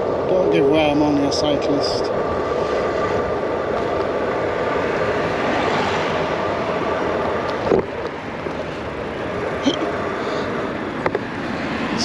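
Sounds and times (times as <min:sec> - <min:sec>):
bicycle road rumble: 0:00.0 - 0:12.0
sound falling in pitch: 0:00.3 - 0:02.0.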